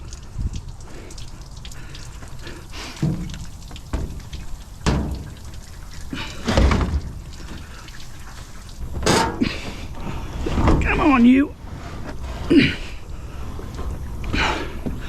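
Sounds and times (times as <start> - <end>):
water sloshing in drum: 1.2 - 15.0
washing machine thudding and scraping: 3.0 - 15.0.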